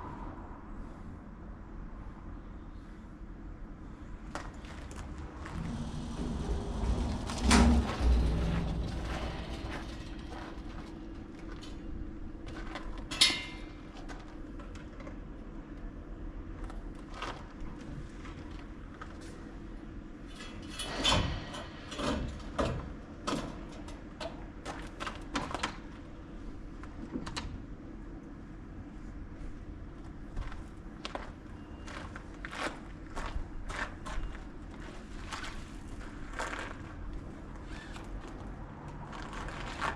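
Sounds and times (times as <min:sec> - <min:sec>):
steady hum: 0:00.0 - 0:14.7.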